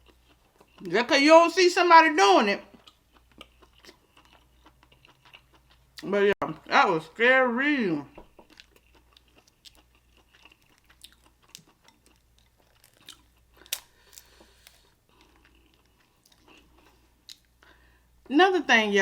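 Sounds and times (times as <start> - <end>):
person chewing: 0.0 - 0.9, 2.7 - 6.1, 8.1 - 17.9
shell clicks and crunches: 10.5 - 14.9
shell cracking: 12.6 - 14.9.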